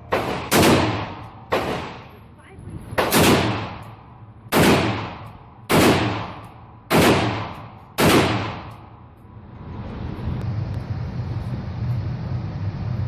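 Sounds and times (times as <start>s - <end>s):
gunshots with ringing echo: 0.0s - 2.2s, 3.0s - 8.9s.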